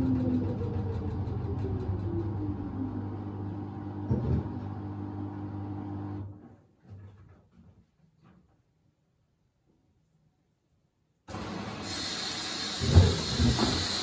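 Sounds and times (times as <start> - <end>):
washer drum motor hum: 0.0 - 6.3, 11.3 - 14.0.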